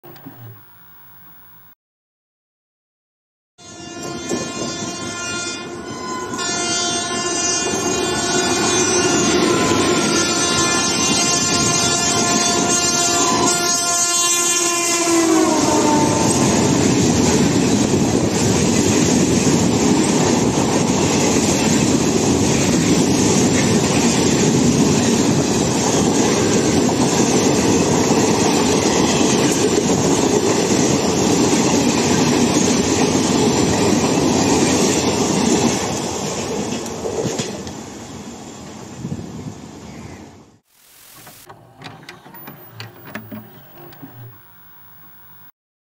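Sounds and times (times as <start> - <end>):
train horn: 3.6 - 17.0
train coaches rumbling and clattering: 16.2 - 38.9.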